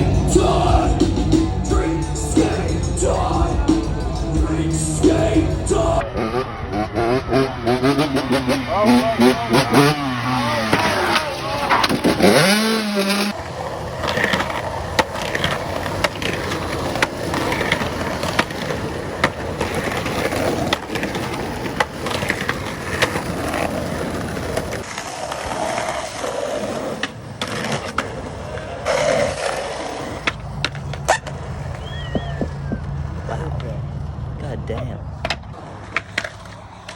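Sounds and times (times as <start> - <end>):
skateboard wheels rolling: 0.0 - 36.9
skateboard clacks and impacts: 10.6 - 26.3, 26.9 - 33.2.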